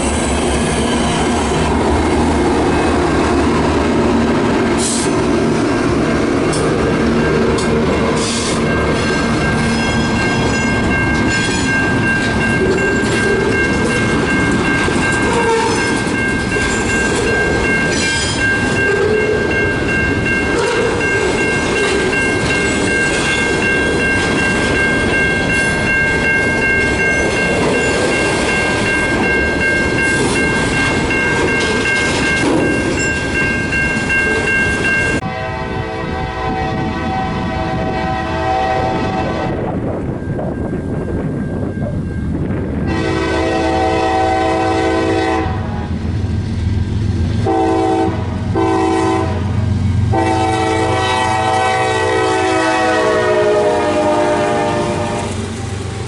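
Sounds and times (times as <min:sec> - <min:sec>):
train wheels clicking on rails: 0:00.0 - 0:35.2
high ringing tone: 0:07.2 - 0:35.3
train horn: 0:15.2 - 0:16.0, 0:20.5 - 0:22.1, 0:35.2 - 0:39.6, 0:42.9 - 0:45.9, 0:47.4 - 0:55.4.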